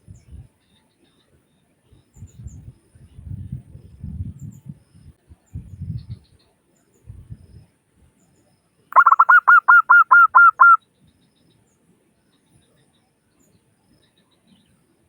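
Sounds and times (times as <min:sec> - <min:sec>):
dove cooing: 0:09.0 - 0:10.8.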